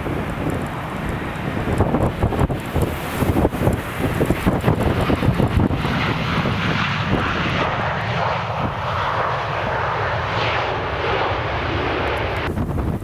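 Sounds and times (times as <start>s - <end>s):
airliner engines passing: 0.0s - 13.0s
wind buffeting microphone: 0.0s - 13.0s.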